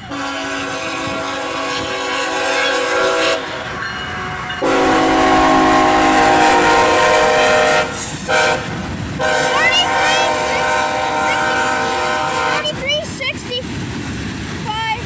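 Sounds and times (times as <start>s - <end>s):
locomotive horn blasts: 0.0s - 12.8s
train running rumble: 0.0s - 15.0s.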